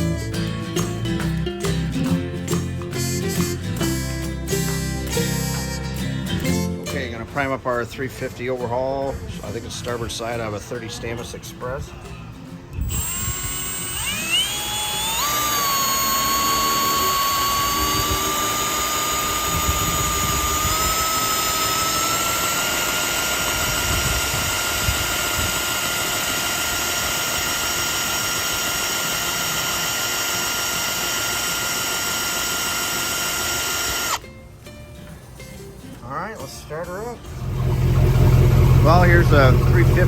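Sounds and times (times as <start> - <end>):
electric drill whine: 12.8 - 34.2.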